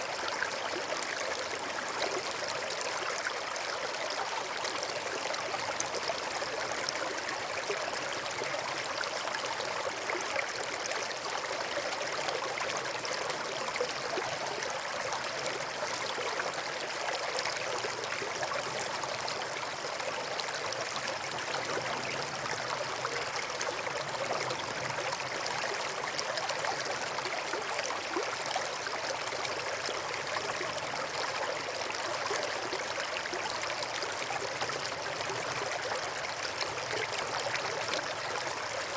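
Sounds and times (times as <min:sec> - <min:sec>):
small stream babbling: 0:00.0 - 0:38.9.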